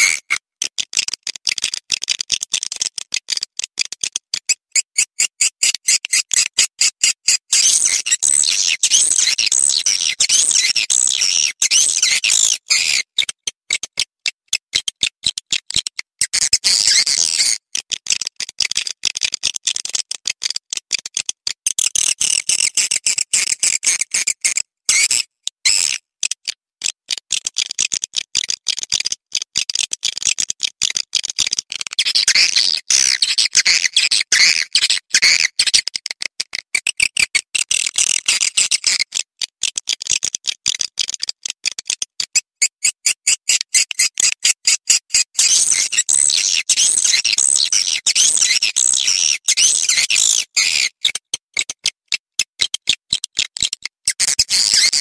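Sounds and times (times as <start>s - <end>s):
high bird chirps and twitters: 7.6s - 13.0s, 45.4s - 50.9s.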